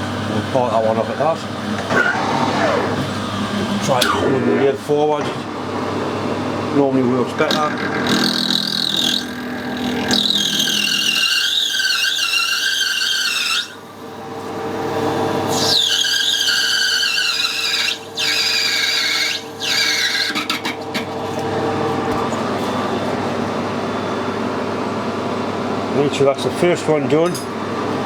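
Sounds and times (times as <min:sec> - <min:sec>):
lathe motor hum: 0:00.0 - 0:04.9, 0:05.5 - 0:25.8
lathe tool squealing on metal: 0:07.5 - 0:13.9, 0:15.5 - 0:20.7.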